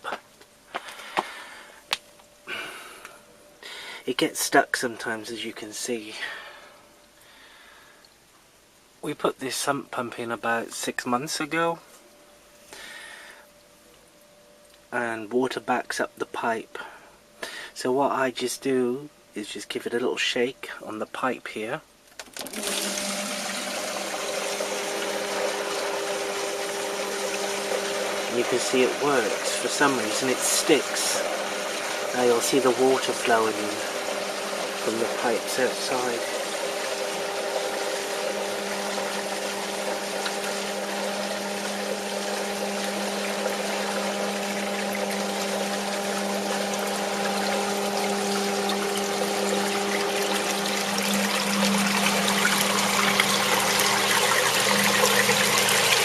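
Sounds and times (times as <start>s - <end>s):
sump pump motor hum: 0.0s - 7.7s, 22.2s - 56.0s
water rushing through pipe: 22.4s - 56.0s.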